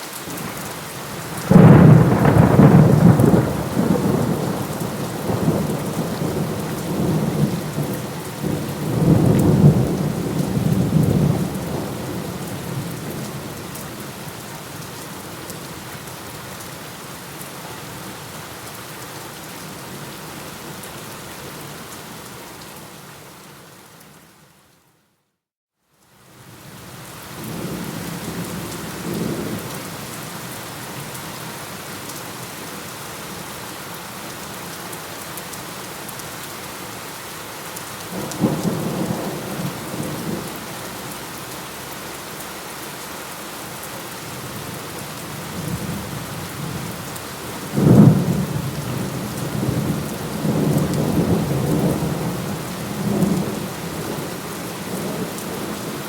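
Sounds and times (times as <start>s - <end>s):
steady rain: 0.0s - 25.0s, 25.8s - 56.0s
loud thunderclap: 1.4s - 12.2s, 47.7s - 54.2s
rolling thunder: 1.4s - 13.2s, 47.5s - 54.3s.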